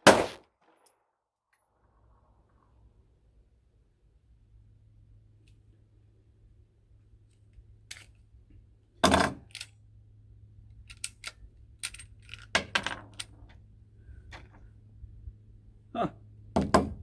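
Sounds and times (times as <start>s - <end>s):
metallic clicks of firearm handling: 7.3s - 8.4s, 9.2s - 9.8s, 10.7s - 13.6s.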